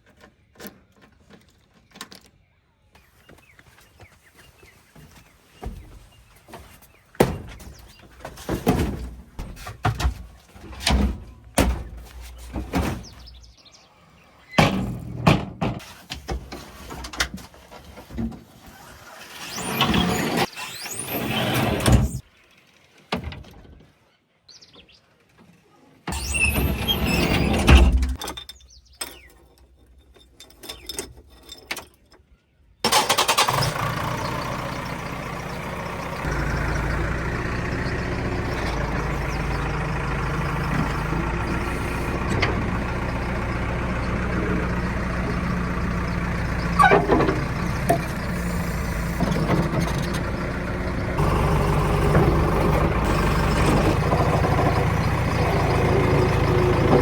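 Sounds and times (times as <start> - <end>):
heavy diesel engine running: 32.9 - 57.0.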